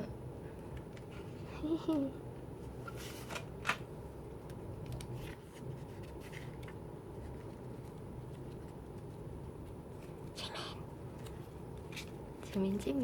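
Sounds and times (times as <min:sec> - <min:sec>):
paper packaging rustling: 0:05.0 - 0:10.3.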